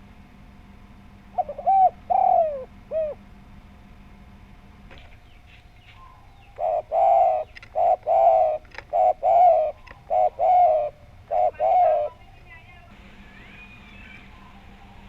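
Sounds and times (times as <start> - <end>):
dove cooing: 1.3 - 3.3, 5.9 - 15.0.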